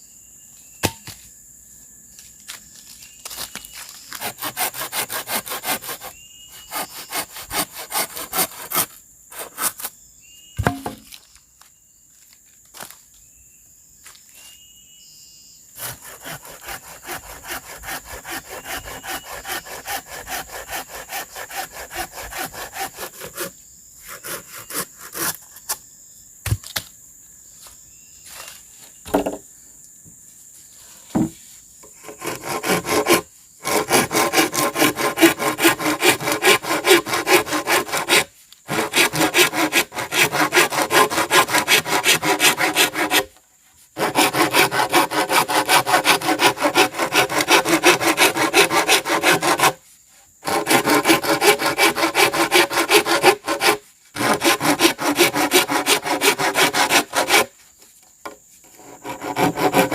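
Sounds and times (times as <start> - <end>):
hand saw cutting bamboo: 3.2 - 9.9, 15.8 - 25.6, 32.0 - 43.4, 44.0 - 49.8, 50.4 - 57.6, 58.6 - 59.9.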